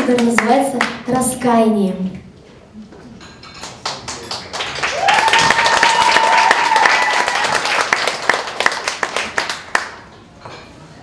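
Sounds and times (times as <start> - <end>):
audience applause: 3.8 - 10.1.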